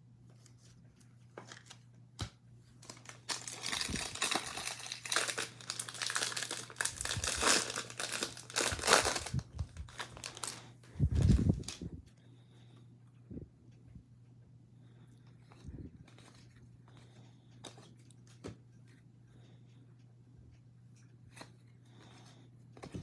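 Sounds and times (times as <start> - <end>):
wrapper tearing and crinkling: 2.8 - 11.8.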